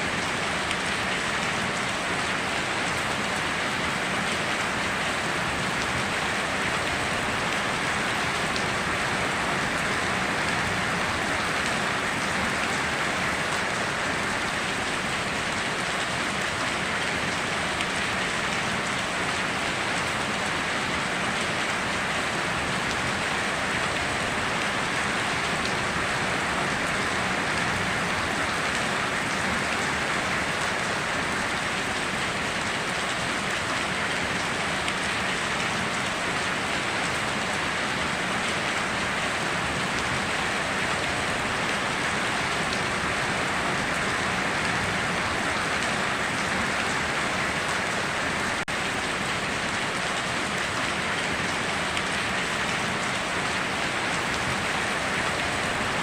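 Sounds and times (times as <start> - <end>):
heavy rain pattering: 0.0 - 56.0.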